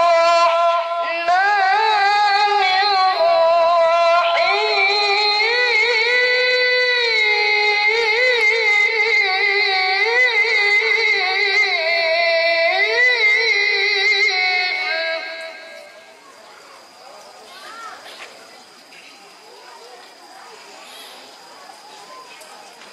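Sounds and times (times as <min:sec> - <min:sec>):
child chanting recitation: 0:00.0 - 0:18.2.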